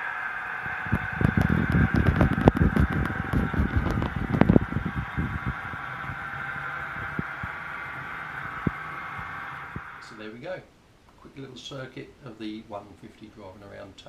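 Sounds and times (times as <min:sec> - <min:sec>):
model train diesel engine hum: 0:00.0 - 0:10.0.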